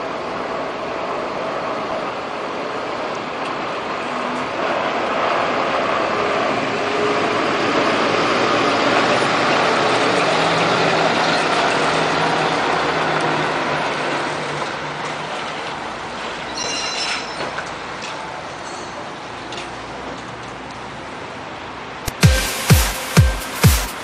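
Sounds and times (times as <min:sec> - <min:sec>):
heavy truck engine and road noise: 0:00.0 - 0:24.0
brief high squeal: 0:16.5 - 0:17.6.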